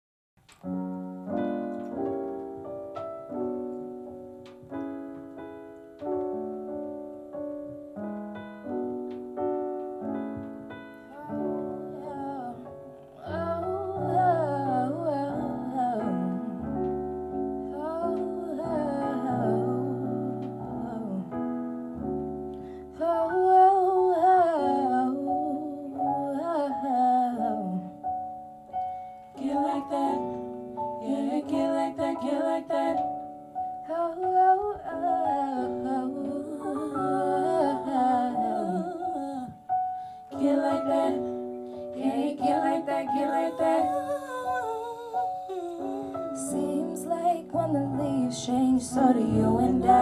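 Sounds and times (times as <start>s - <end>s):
electric piano chords: 0.4s - 50.0s
bass: 47.5s - 50.0s.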